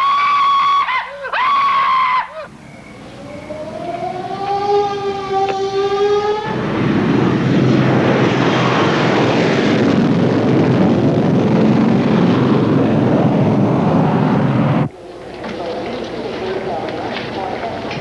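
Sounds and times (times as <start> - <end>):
rising whine: 2.5 - 14.9
engine roar: 2.5 - 18.0.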